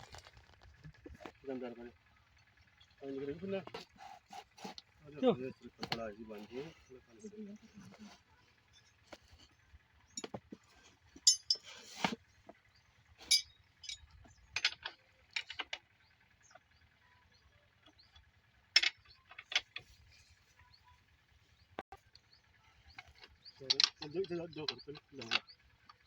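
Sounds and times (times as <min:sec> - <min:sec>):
metal clinks and knocks: 0:10.1 - 0:12.2, 0:13.2 - 0:15.8, 0:18.8 - 0:19.9, 0:23.0 - 0:26.0.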